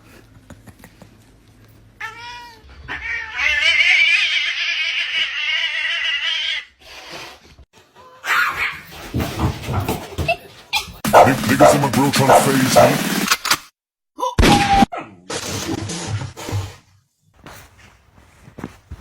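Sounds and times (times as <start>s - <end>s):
cat yowling: 2.0s - 6.7s.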